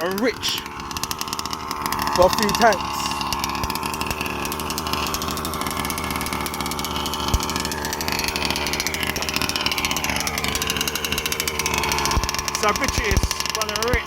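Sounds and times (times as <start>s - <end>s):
two-stroke engine idling: 0.0s - 14.0s.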